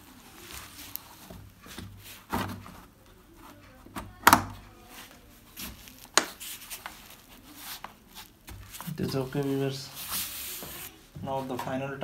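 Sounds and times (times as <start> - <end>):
plastic parts snapping into place: 4.0 - 4.6.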